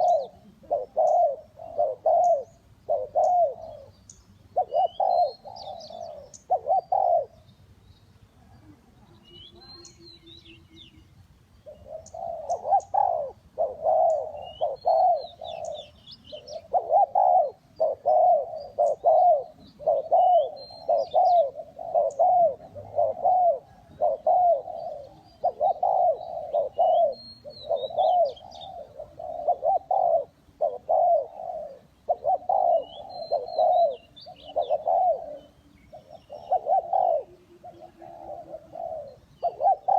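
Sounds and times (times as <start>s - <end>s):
dove cooing: 0.0s - 7.5s, 11.6s - 39.9s
small birds chirping: 0.0s - 39.9s.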